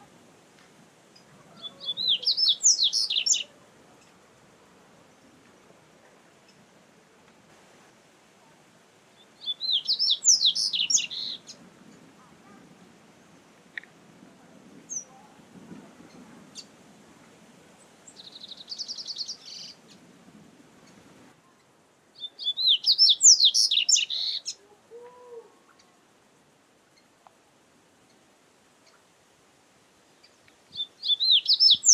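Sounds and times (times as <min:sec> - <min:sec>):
bird warbling song: 0:01.2 - 0:04.1, 0:09.2 - 0:12.0, 0:18.0 - 0:20.1, 0:21.6 - 0:24.6, 0:30.2 - 0:31.9.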